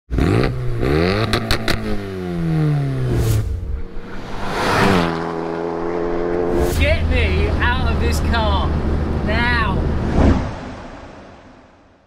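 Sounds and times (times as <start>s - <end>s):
car engine revving: 0.1s - 12.0s.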